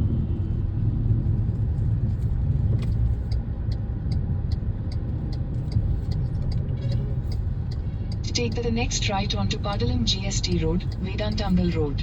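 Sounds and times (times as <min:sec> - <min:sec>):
vehicle road rumble: 0:00.0 - 0:12.0
faint light ticks: 0:02.6 - 0:11.8.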